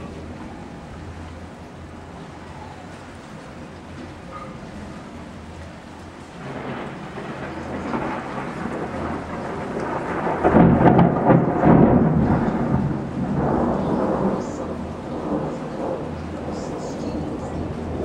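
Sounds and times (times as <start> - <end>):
steady rain: 0.0 - 18.0
thunder rumbling: 0.0 - 18.0.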